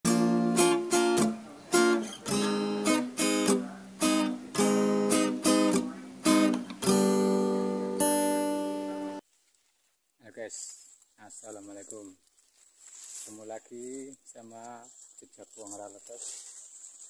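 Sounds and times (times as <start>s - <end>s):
acoustic guitar strumming chords: 0.0s - 9.2s.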